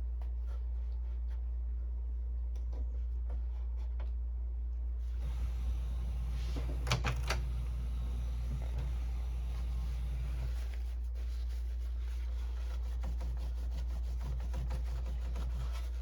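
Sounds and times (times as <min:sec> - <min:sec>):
steady low hum: 0:00.0 - 0:16.0
printer motor whirring: 0:05.2 - 0:10.8
printer clicks feeding paper: 0:05.3 - 0:09.0.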